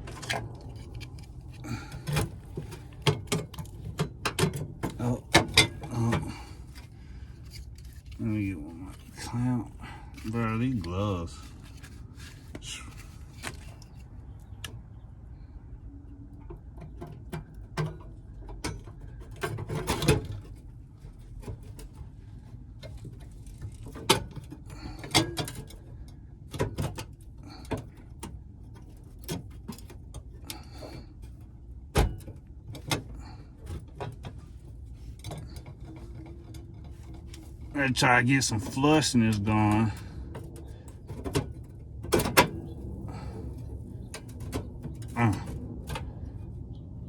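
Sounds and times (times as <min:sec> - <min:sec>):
metal clamps clanking and knocking: 0:00.1 - 0:08.1.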